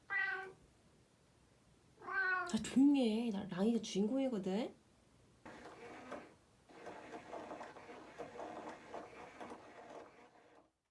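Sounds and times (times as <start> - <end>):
faint mechanical whirring and rattling: 5.4 - 10.8.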